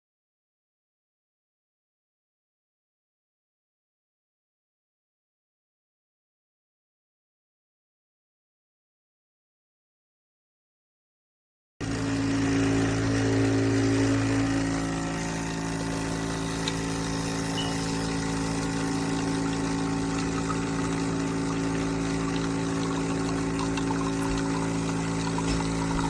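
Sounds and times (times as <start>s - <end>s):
espresso machine pump buzzing: 11.8s - 26.0s.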